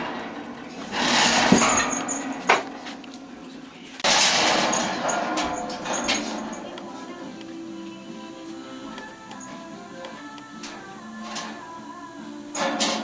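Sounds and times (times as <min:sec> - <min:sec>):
wire cage rattling: 0:00.0 - 0:07.3, 0:10.6 - 0:11.8, 0:12.5 - 0:13.0.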